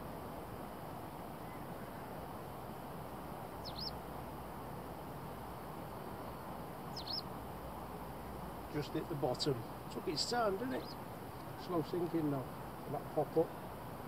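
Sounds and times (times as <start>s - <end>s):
outdoor background rush: 0.0s - 14.0s
bird call: 3.6s - 4.0s, 6.9s - 7.3s.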